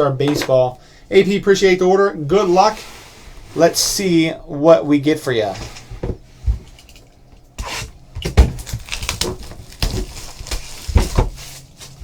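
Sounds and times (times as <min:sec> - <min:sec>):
cardboard packaging crinkling: 0:08.3 - 0:12.0.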